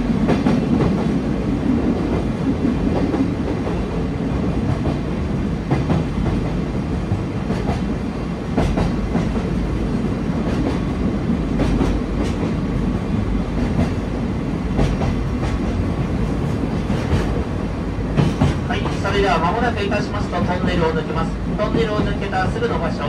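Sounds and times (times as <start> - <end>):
rumble of wheels on rail: 0.0 - 23.0
wheels clacking at rail joints: 2.9 - 9.8, 10.4 - 12.7, 13.5 - 14.1, 14.7 - 17.5, 18.1 - 19.1.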